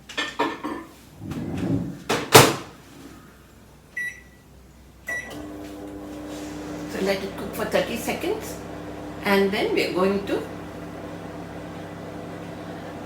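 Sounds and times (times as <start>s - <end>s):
microwave keypad beeps: 4.0s - 4.4s, 5.1s - 5.4s.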